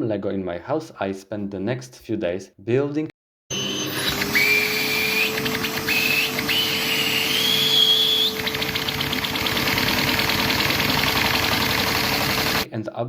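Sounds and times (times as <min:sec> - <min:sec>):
vacuum cleaner running: 0:03.5 - 0:12.7
high whistle of sucked air: 0:03.6 - 0:08.4
toy engine fast clicking: 0:05.1 - 0:12.7.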